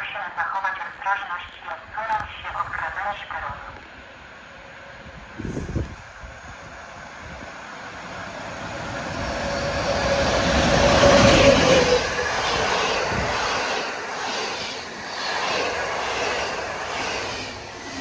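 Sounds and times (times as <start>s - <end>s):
locomotive passing: 3.8s - 18.0s.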